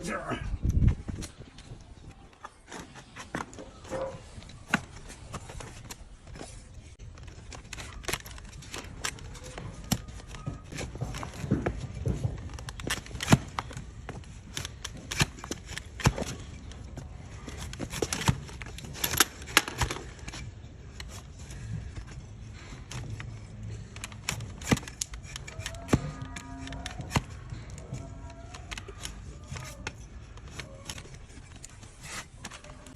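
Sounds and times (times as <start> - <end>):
tool snipping hoof: 7.2 - 32.9.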